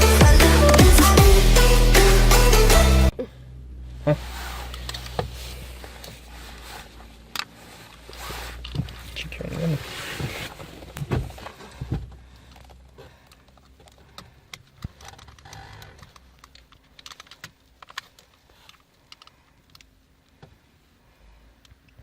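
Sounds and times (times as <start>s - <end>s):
small hard parts clicking: 10.9s - 20.5s.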